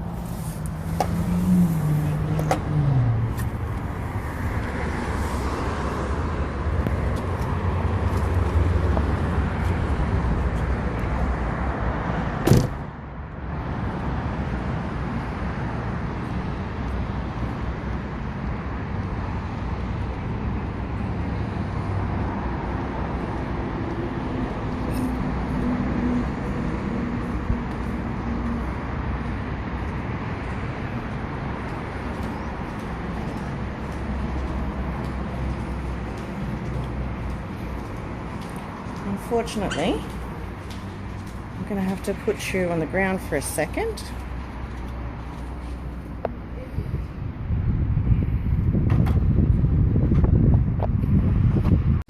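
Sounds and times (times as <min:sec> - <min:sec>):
passing car engines and tyres: 0:00.0 - 0:52.0
sharp knock: 0:12.4 - 0:12.8.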